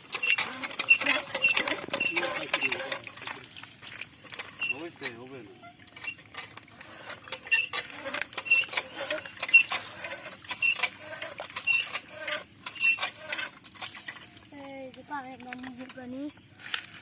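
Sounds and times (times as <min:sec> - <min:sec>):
mechanism squeaking and clicking: 0:00.0 - 0:03.3, 0:04.6 - 0:14.3.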